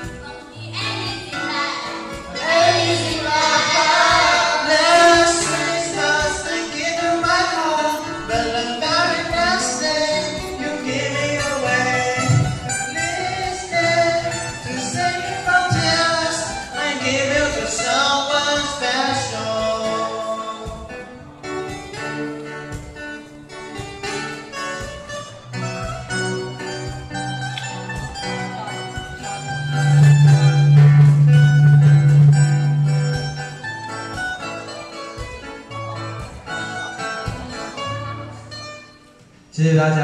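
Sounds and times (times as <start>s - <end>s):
guitar: 0.0s - 40.0s
group singing: 0.7s - 21.1s
low bass notes: 25.4s - 34.4s.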